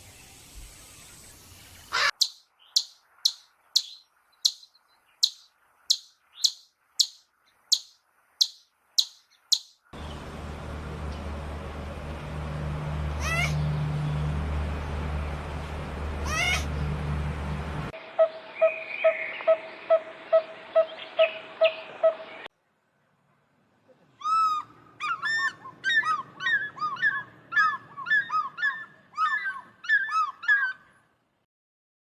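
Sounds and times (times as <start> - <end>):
chirping bird calls: 1.2 - 17.3, 18.1 - 22.5, 24.1 - 31.0
low hum: 10.0 - 18.6
upward-sweeping animal call: 13.1 - 13.9, 16.2 - 17.0, 24.2 - 30.9.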